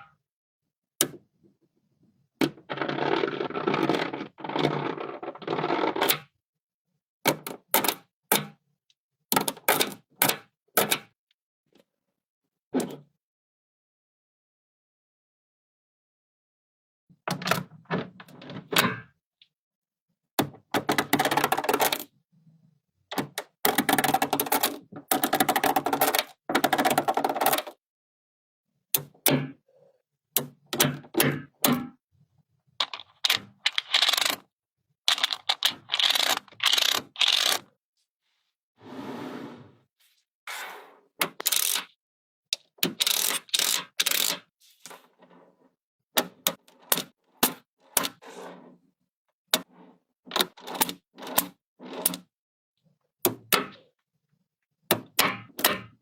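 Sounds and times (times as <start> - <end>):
magnetic pieces clicking: 32.8 - 34.4, 35.1 - 37.6, 41.3 - 41.9, 42.6 - 44.4
magnets clicking together: 41.4 - 41.9, 42.9 - 44.4.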